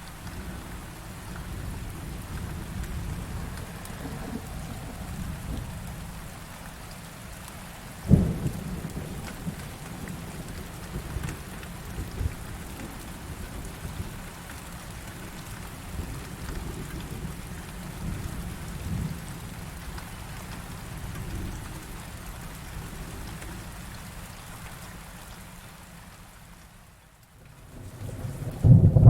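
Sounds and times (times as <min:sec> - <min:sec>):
heavy rain pouring: 0:00.0 - 0:29.0
thunder rumbling: 0:00.3 - 0:06.4, 0:08.0 - 0:14.1, 0:27.6 - 0:29.0.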